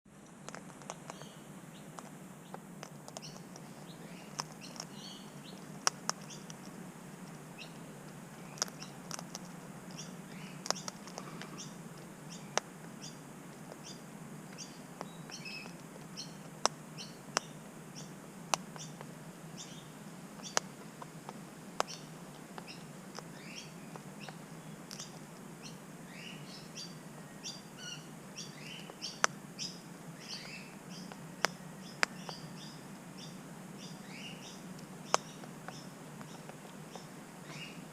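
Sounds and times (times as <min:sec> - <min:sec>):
low steady hum: 0:00.1 - 0:37.9
beaks tapping on seed: 0:00.2 - 0:26.9, 0:28.4 - 0:37.9
high bird chirps: 0:03.2 - 0:05.6, 0:21.8 - 0:37.9.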